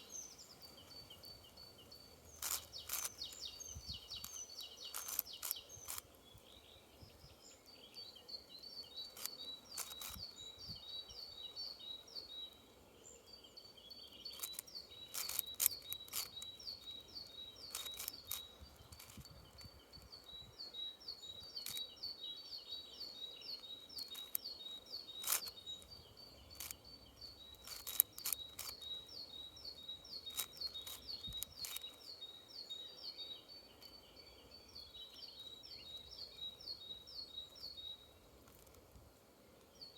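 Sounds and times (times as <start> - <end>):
songbird chirping: 0.0 - 39.9
puzzle cube clicks: 4.1 - 6.0, 14.3 - 16.5, 17.7 - 19.2, 27.6 - 28.8.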